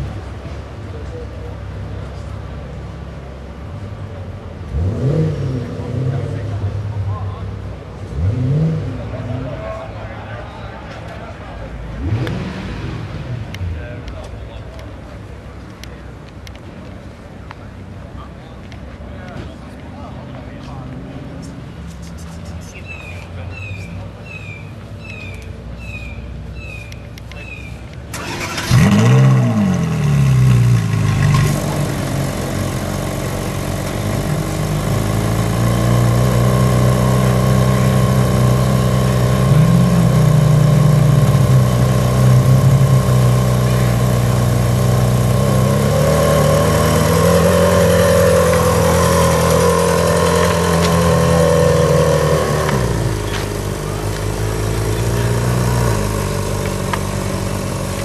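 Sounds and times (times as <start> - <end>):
car engine starting and idling: 26.5 - 58.0.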